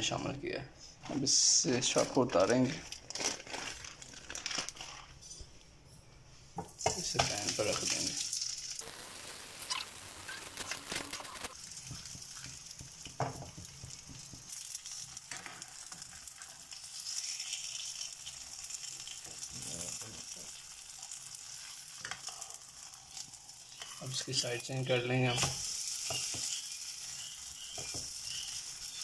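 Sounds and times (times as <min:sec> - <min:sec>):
flatbread sizzling in oil: 0:06.7 - 0:29.0.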